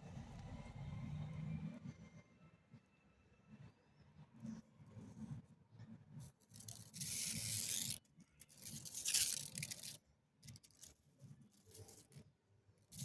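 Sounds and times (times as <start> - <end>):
rough scratching and rubbing: 6.4 - 12.2.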